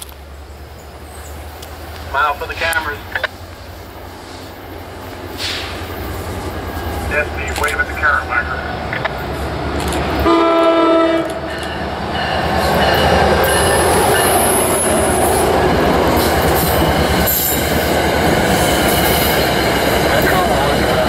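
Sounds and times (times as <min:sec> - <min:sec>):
train rumbling past on rails: 0:00.0 - 0:21.0
locomotive horn: 0:10.2 - 0:11.6.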